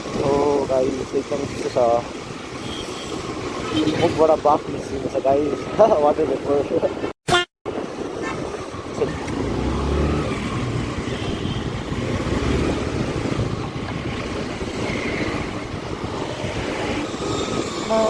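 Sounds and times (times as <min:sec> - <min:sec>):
wind noise on microphone: 0:07.7 - 0:18.0.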